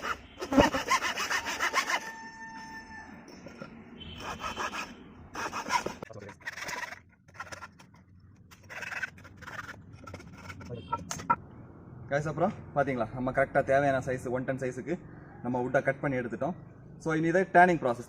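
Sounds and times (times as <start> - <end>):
hacksaw sawing wood: 0.0 - 2.2, 4.2 - 7.9, 8.5 - 10.7.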